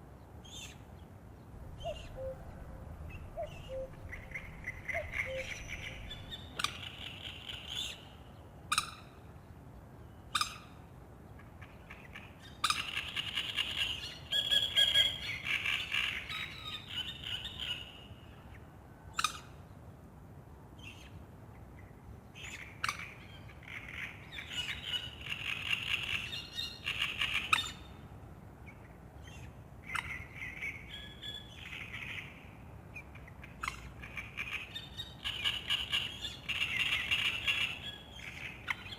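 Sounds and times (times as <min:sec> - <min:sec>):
songbirds singing: 0:00.0 - 0:19.9, 0:20.8 - 0:38.9
faint steady background: 0:00.0 - 0:38.9
bird chirps: 0:01.4 - 0:08.1.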